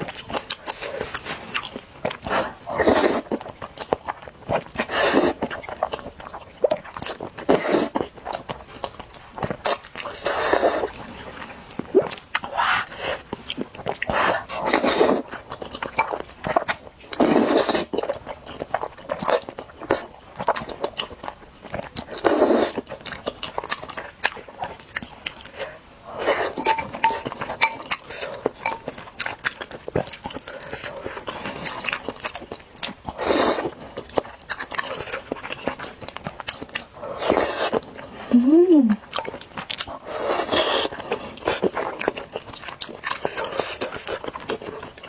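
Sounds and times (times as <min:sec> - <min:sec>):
wet chewing: 0:00.0 - 0:45.0
noodles slurped: 0:00.2 - 0:06.0, 0:06.6 - 0:18.2, 0:21.7 - 0:23.6, 0:33.0 - 0:45.0.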